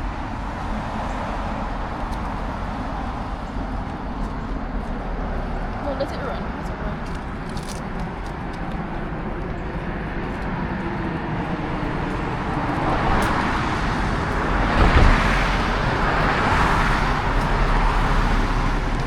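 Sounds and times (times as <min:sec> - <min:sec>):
vehicle road noise rumble: 0:00.0 - 0:19.0.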